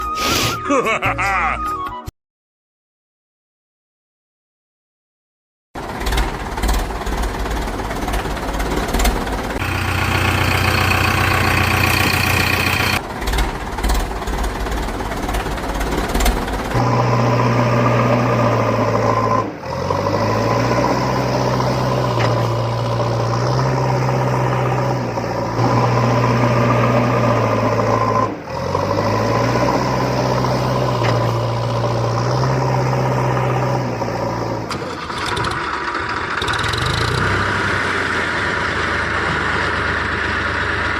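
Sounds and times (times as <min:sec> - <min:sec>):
engine running loudly: 0:05.8 - 0:40.9.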